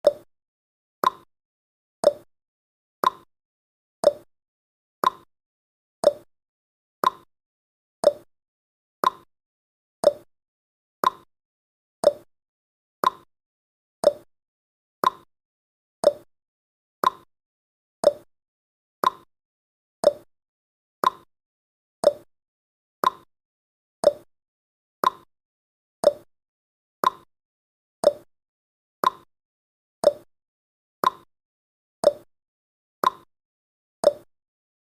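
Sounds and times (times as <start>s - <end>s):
timer ticking: 0.0s - 0.3s, 1.0s - 1.3s, 2.0s - 2.3s, 3.0s - 3.3s, 4.0s - 4.3s, 5.0s - 5.3s, 6.0s - 6.3s, 7.0s - 7.3s, 8.0s - 8.3s, 9.0s - 9.3s, 10.0s - 10.3s, 11.0s - 11.3s, 12.0s - 12.3s, 13.0s - 13.3s, 14.0s - 14.3s, 15.0s - 15.3s, 16.0s - 16.3s, 17.0s - 17.3s, 18.0s - 18.3s, 19.0s - 19.3s, 20.0s - 20.3s, 21.0s - 21.3s, 22.0s - 22.3s, 23.0s - 23.3s, 24.0s - 24.3s, 25.0s - 25.3s, 26.0s - 26.3s, 27.0s - 27.3s, 28.0s - 28.3s, 29.0s - 29.3s, 30.0s - 30.3s, 31.0s - 31.3s, 32.0s - 32.3s, 33.0s - 33.3s, 34.0s - 34.3s.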